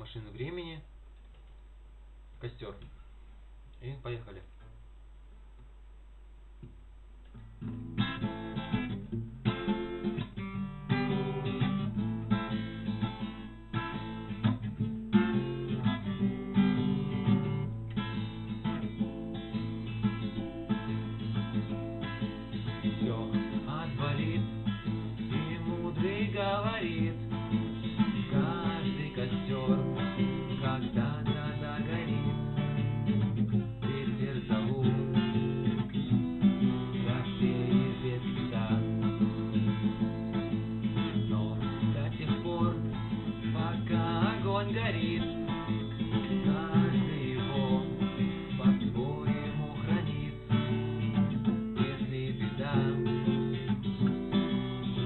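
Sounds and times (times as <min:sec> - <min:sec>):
acoustic guitar strumming: 0:07.3 - 0:55.0
person singing: 0:22.8 - 0:32.6, 0:33.6 - 0:35.6, 0:36.8 - 0:39.7, 0:41.0 - 0:50.8, 0:51.5 - 0:53.6.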